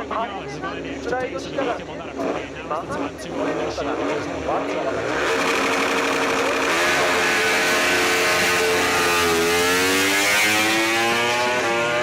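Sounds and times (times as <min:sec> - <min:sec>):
racing motorcycle engines revving: 0:04.0 - 0:12.0.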